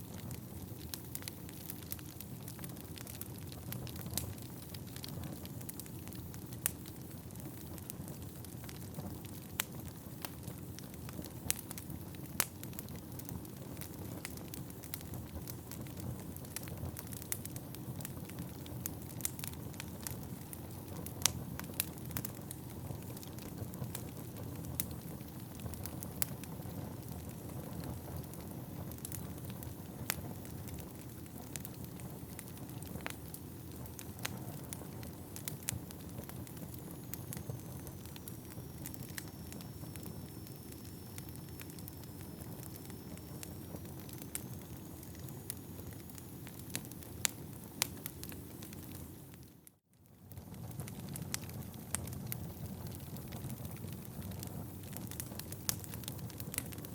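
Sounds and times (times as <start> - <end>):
logs crackling and popping: 0.0 - 56.9
faint high whistle: 36.8 - 46.4.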